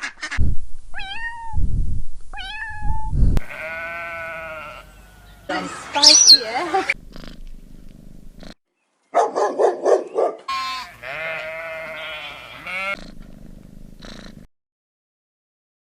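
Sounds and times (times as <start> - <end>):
wavering animal call: 3.5 - 7.0
pulsing animal call: 3.6 - 7.4.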